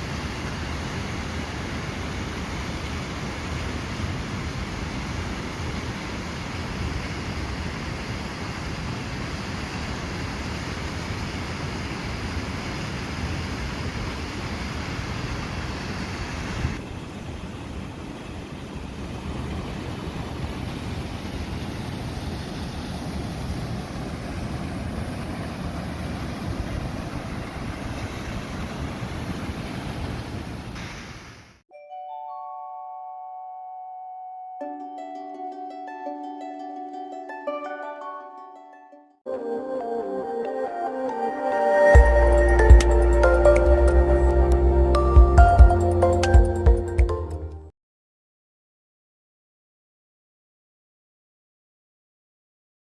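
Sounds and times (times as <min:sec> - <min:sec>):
waterfall roaring: 0:00.0 - 0:31.5.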